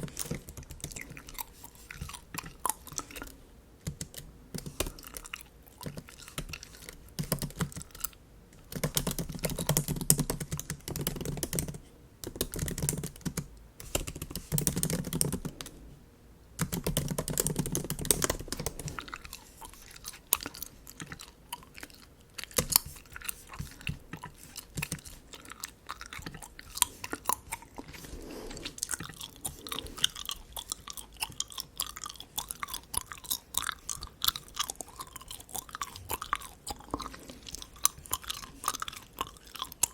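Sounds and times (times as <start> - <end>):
bubble gum chewing: 0.0 - 11.4, 16.7 - 39.9
light keyboard tapping: 8.7 - 15.7, 16.6 - 19.0.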